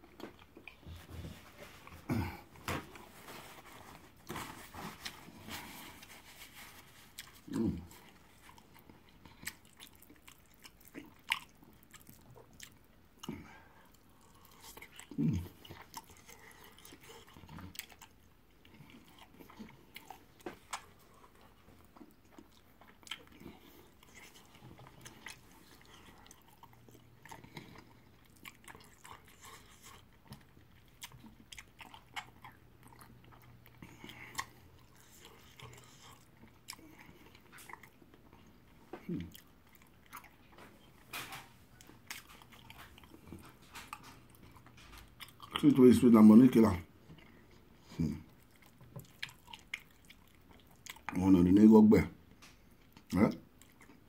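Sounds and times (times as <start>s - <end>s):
mouth chewing clicks and smacks: 8.4s - 40.9s, 48.3s - 51.2s.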